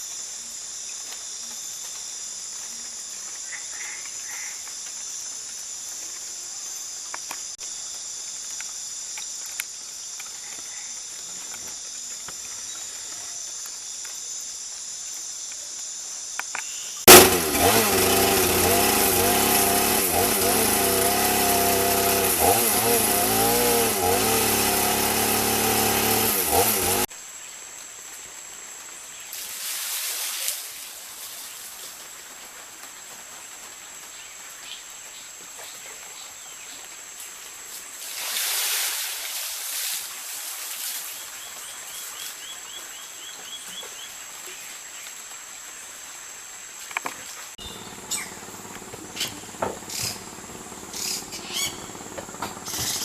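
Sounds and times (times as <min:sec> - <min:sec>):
insect chorus buzzing: 0:00.0 - 0:33.1, 0:33.7 - 0:53.0
small engine running: 0:17.1 - 0:27.1, 0:47.6 - 0:53.0.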